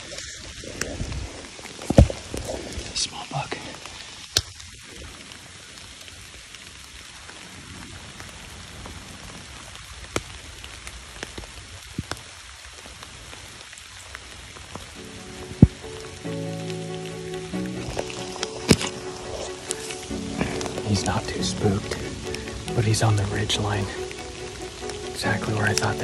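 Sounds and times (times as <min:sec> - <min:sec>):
rain falling on grass and leaves: 0:00.0 - 0:26.0
background music: 0:14.9 - 0:26.0.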